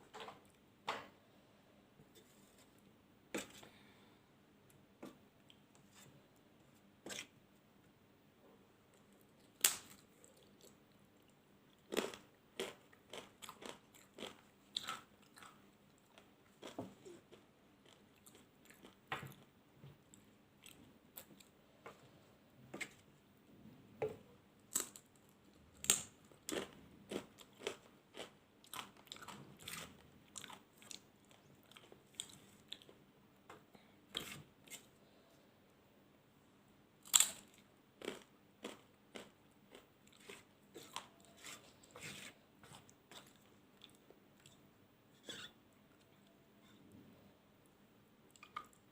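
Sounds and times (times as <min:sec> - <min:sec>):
chewing and crunching food: 0:09.0 - 0:22.2, 0:24.7 - 0:33.0, 0:37.0 - 0:44.6.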